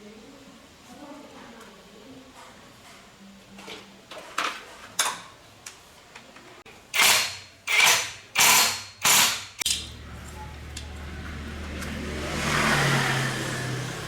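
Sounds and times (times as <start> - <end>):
lawn mower engine starting: 9.8 - 14.0.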